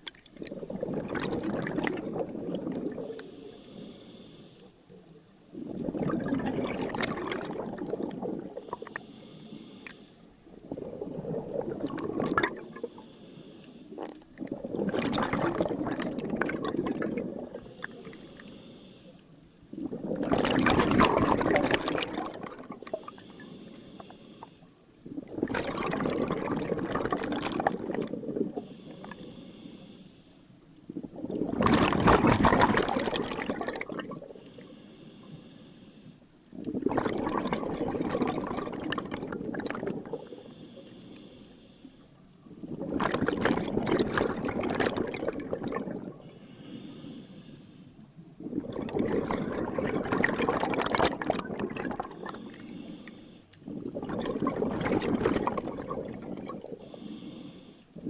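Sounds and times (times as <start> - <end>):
diver exhaling bubbles underwater: 0.0 - 3.4, 5.5 - 9.0, 10.5 - 13.0, 13.9 - 18.1, 19.7 - 23.3, 25.0 - 29.3, 30.9 - 34.5, 36.5 - 40.5, 42.5 - 46.4, 48.2 - 52.8, 53.6 - 57.0
faint high hiss: 2.7 - 5.6, 12.5 - 14.5, 17.4 - 19.8, 22.8 - 25.2, 28.4 - 30.9, 34.1 - 36.6, 40.0 - 42.7, 46.1 - 48.4, 52.0 - 53.7, 56.6 - 58.0.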